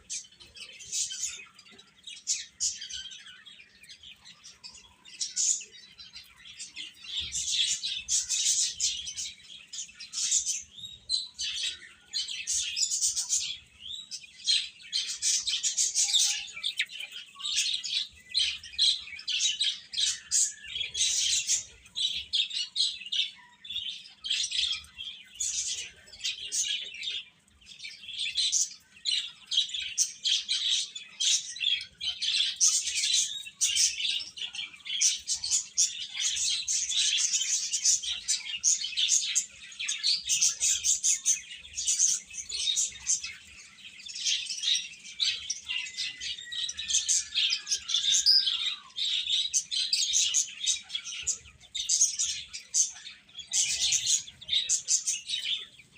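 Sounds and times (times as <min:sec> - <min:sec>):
baby chicks peeping: 0:00.0 - 0:55.9.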